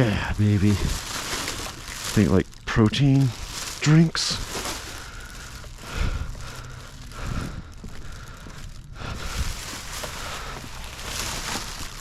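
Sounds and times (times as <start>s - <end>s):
plastic bags rustling and crinkling: 0.0s - 12.0s.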